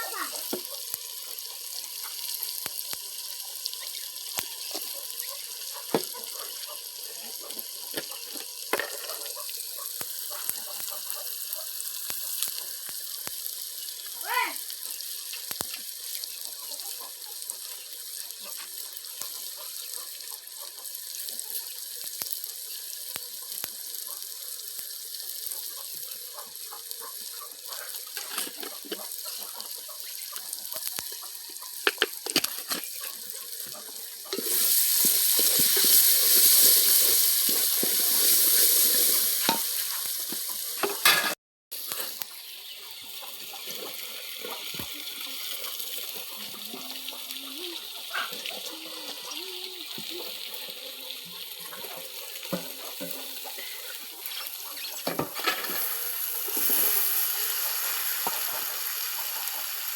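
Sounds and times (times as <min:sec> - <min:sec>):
food sizzling: 0:00.0 - 0:59.9
stirring clicks and knocks: 0:28.1 - 0:29.1, 0:31.1 - 0:36.6.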